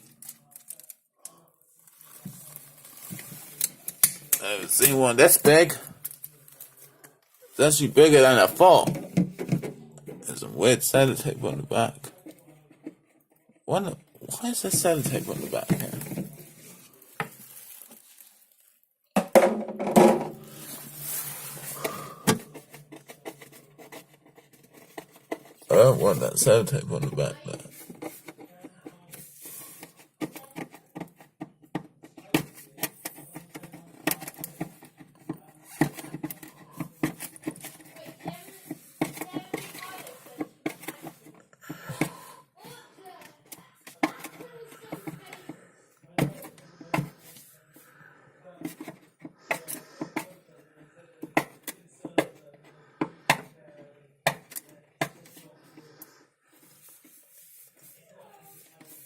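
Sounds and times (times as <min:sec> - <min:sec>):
tape and plastic crackling: 0:00.0 - 0:05.1, 0:14.8 - 0:18.9.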